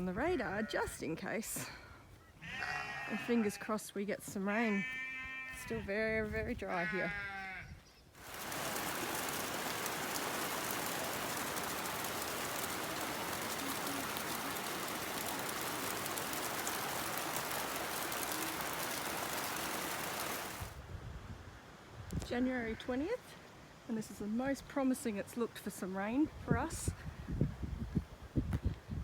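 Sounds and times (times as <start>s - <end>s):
steady rain pattering: 8.2s - 20.8s.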